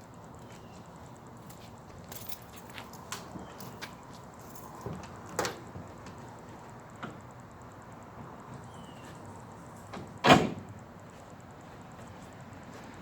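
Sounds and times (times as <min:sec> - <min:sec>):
door slamming: 0:10.0 - 0:10.7.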